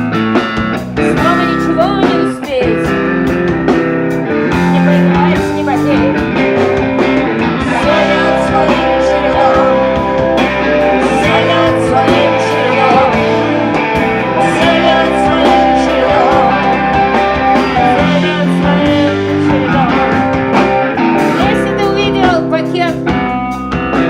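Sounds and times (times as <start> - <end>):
electric guitars: 0.0 - 24.0
person singing: 1.0 - 3.0, 7.4 - 23.0.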